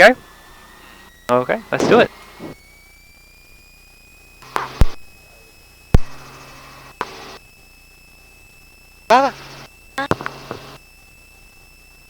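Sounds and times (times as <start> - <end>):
faint high whine: 0.0 - 12.0
buzzy intercom bursts: 1.3 - 2.6.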